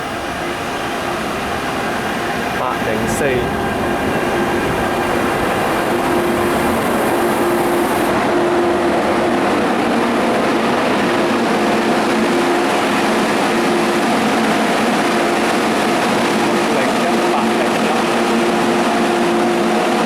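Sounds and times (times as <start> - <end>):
electric train running: 0.0 - 20.0
traction equipment hum: 0.0 - 20.0.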